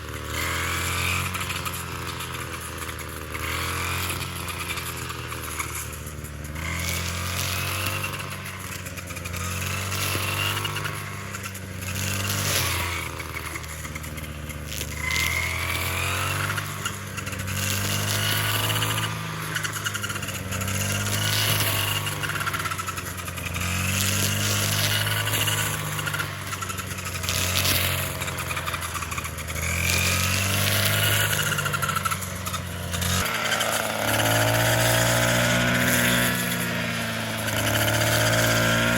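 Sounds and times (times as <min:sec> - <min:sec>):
small engine revving: 0:00.0 - 0:38.9.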